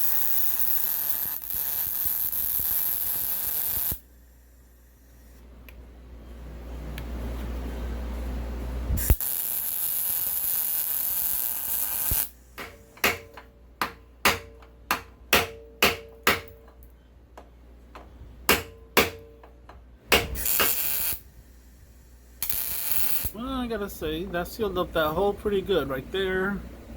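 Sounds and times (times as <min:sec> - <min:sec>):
hammer striking steel: 0:12.6 - 0:16.8, 0:18.5 - 0:20.9
steady hiss: 0:20.4 - 0:26.6.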